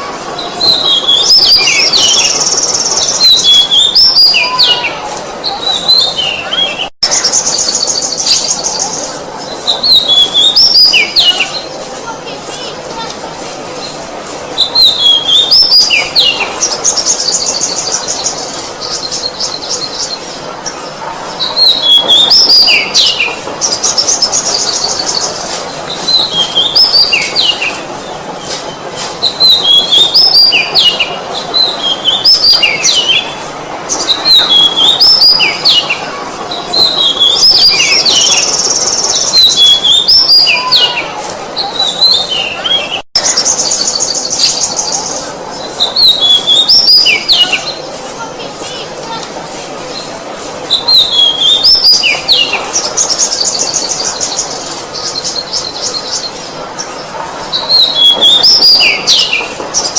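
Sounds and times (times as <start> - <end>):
bird singing whistled notes: 0.4 - 9.1, 9.7 - 11.7, 14.6 - 20.2, 28.7 - 36.0, 36.7 - 41.0, 50.7 - 56.3, 57.5 - 59.5.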